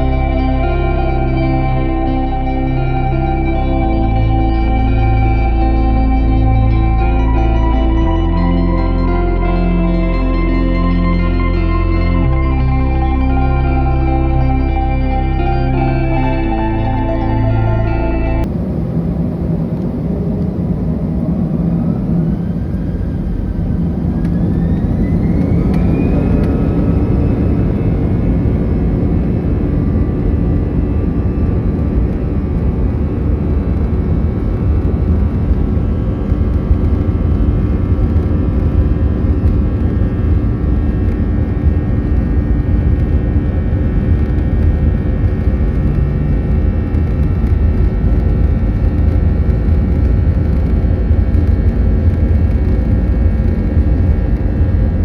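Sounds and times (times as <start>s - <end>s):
heavy rumble of rolling plane: 0.0s - 55.0s
jet engines spooling up: 18.5s - 30.6s.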